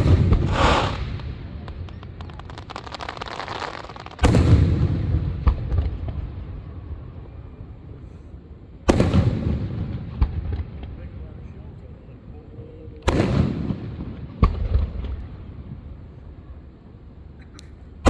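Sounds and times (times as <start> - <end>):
fireworks crackling: 0.0 - 5.4
sharp firework pops: 0.0 - 6.2, 8.9 - 9.6, 13.0 - 15.2
loud firework boom rumbling: 0.0 - 6.3.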